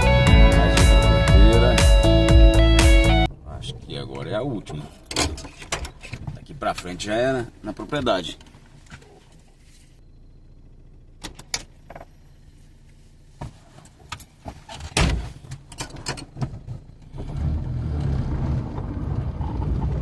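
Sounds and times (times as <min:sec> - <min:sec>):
car engine running: 0:00.0 - 0:20.0
road noise: 0:00.0 - 0:20.0
knocks and clatters: 0:04.9 - 0:06.9.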